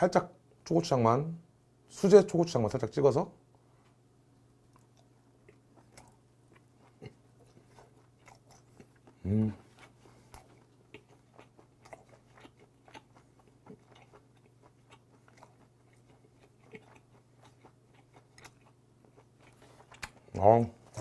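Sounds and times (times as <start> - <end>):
low steady hum: 0.0 - 21.0
chewing mouth clicks and smacks: 4.7 - 20.3.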